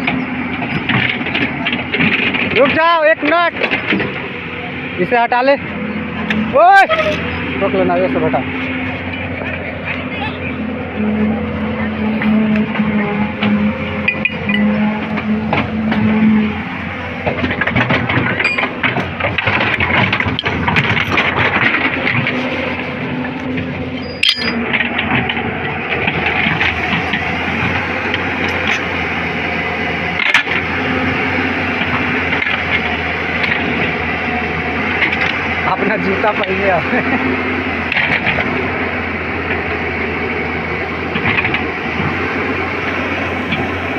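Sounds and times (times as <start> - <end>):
excavator diesel engine running: 0.0 - 43.9
metal knocks and clanks: 17.2 - 22.6.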